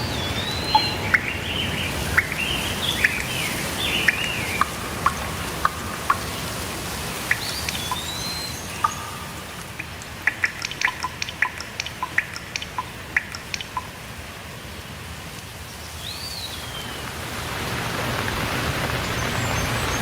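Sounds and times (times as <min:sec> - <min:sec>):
bird whistle: 0:00.0 - 0:06.6, 0:07.2 - 0:09.5
sharp water drips: 0:00.0 - 0:20.0
steady rainfall hiss: 0:00.0 - 0:20.0.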